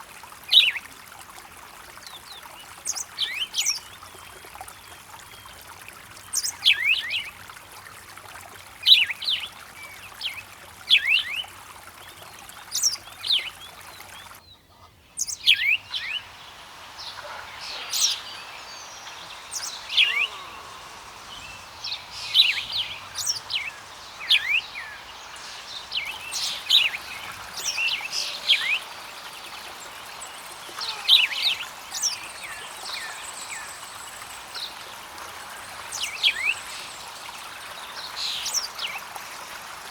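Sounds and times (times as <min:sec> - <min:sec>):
songbirds chirping: 0:00.0 - 0:39.9
stream rushing: 0:15.3 - 0:39.9.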